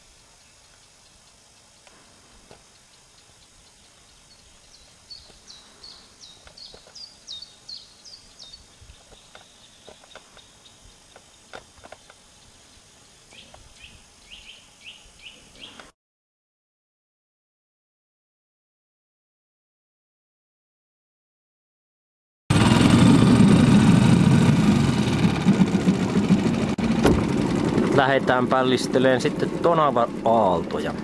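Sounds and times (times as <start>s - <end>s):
small bird singing: 0.0s - 1.9s, 2.6s - 15.9s
low steady hiss: 0.0s - 15.9s.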